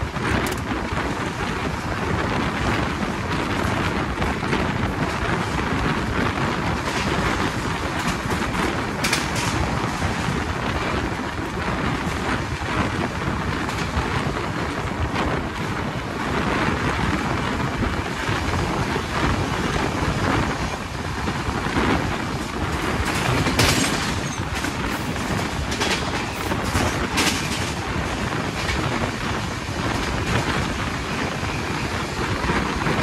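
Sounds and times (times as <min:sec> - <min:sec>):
train running noise: 0:00.0 - 0:33.0.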